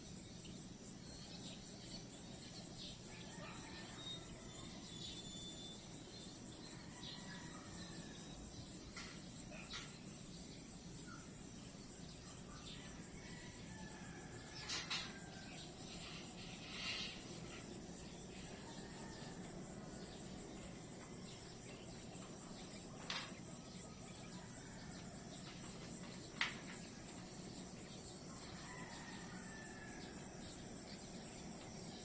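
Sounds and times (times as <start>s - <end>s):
high-pitched insect chorus: 0.0s - 32.0s
faint whistled bird calls: 3.4s - 6.1s.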